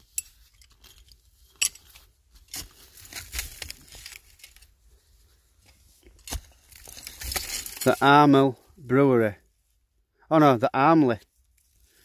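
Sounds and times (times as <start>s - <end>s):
soil and rubble scraping: 0.0s - 8.9s.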